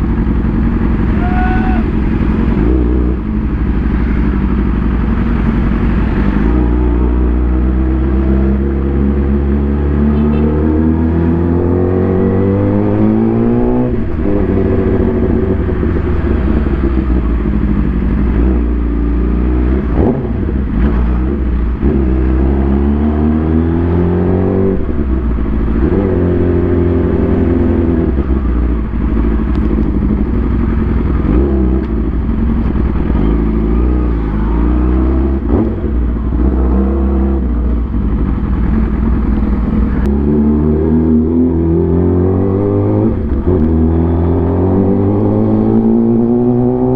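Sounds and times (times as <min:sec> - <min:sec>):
road noise: 0:00.0 - 0:46.9
vehicle engine accelerating: 0:00.0 - 0:46.9.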